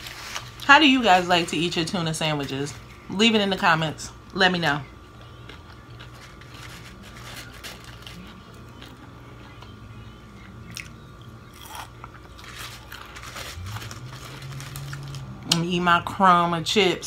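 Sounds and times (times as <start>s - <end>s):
chewing potato chips: 5.1s - 15.5s.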